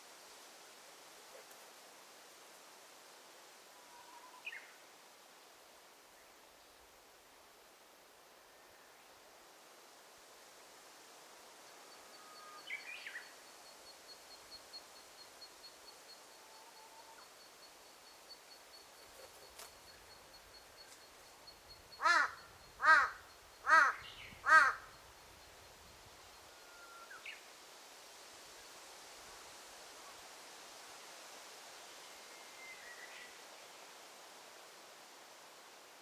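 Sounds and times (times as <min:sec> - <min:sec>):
crow cawing: 0:22.0 - 0:25.0.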